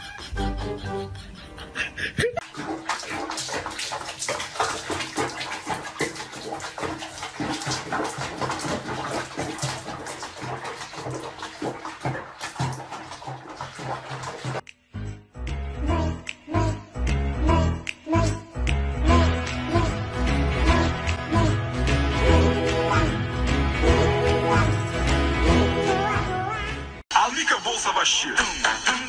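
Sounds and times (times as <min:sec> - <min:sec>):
water splashing and sloshing: 0:02.4 - 0:14.7.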